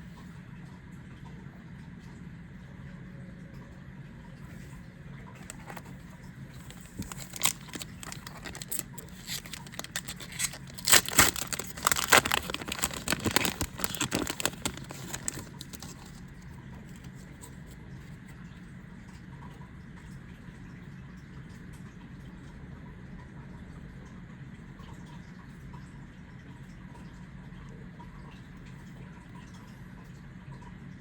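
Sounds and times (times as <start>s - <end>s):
foil pack tearing and crinkling: 5.4s - 6.0s, 6.6s - 17.8s.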